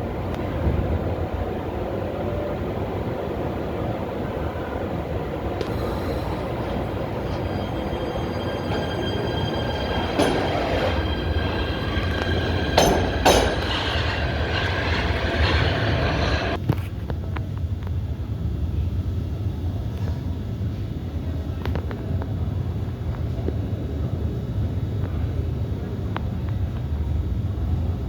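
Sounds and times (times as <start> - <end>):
subway train rumble: 0.0 - 28.0
wheel squeal: 5.6 - 16.6
sharp clunks: 10.0 - 16.6.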